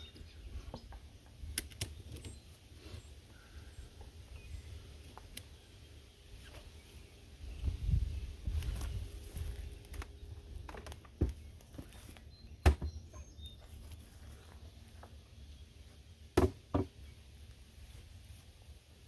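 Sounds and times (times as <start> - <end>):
sharp knocks on wood: 16.4 - 17.0.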